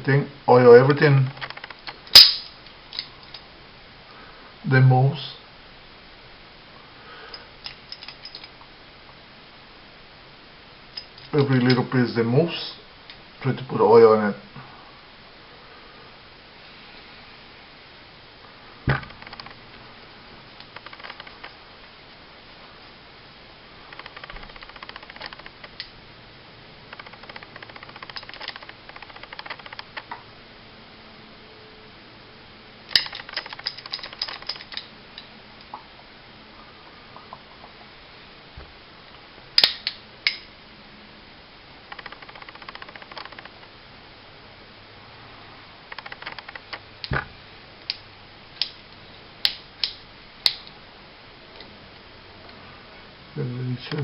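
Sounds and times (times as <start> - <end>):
pistol parts clicking: 1.3 - 3.4, 7.6 - 8.5, 19.0 - 19.6, 20.6 - 21.6, 23.9 - 25.9, 26.9 - 30.2, 32.9 - 35.3, 39.6 - 40.5, 41.9 - 43.6, 45.9 - 47.2, 48.6 - 50.8
sharp metal snap: 1.4 - 3.1, 39.6 - 40.5.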